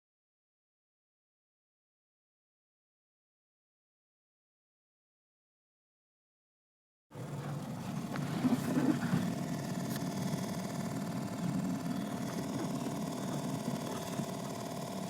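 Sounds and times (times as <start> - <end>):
car engine running with whine: 7.1 - 15.0.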